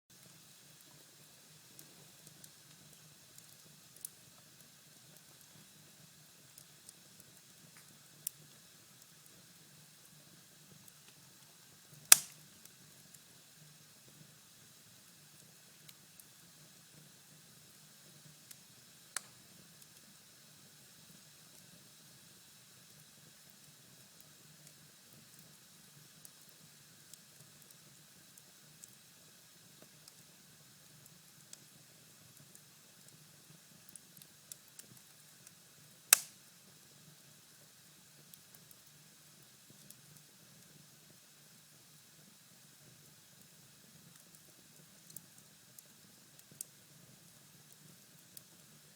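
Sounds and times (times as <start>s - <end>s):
fire crackles: 0.1s - 21.9s, 22.8s - 48.9s
fire crackling: 10.8s - 12.9s, 18.5s - 19.9s, 36.1s - 36.4s, 45.0s - 46.7s.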